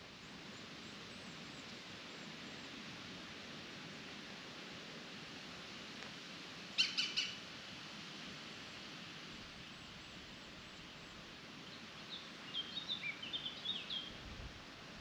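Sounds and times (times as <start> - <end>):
soft outdoor hiss: 0.0 - 15.0
songbirds calling: 6.8 - 7.4, 9.8 - 14.2.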